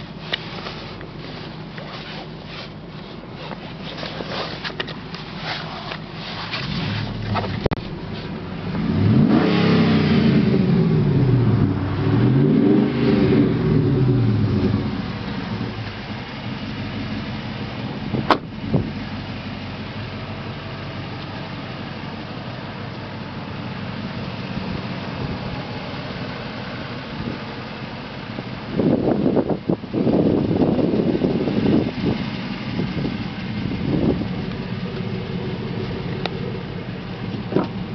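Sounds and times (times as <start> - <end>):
engine idling: 0.0 - 37.9
engine revving: 6.5 - 18.9, 28.8 - 37.9.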